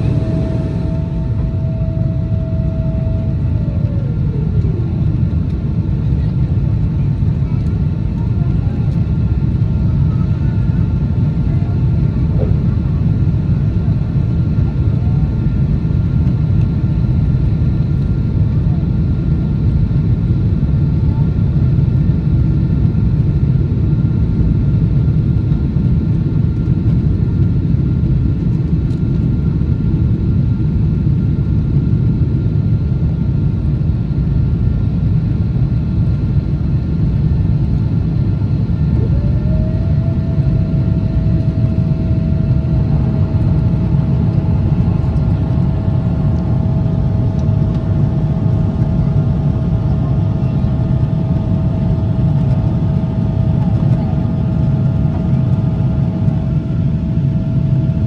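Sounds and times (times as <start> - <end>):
steady whine: 0.0 - 20.4, 34.2 - 58.0
jet engines rumbling in cabin: 0.0 - 58.0.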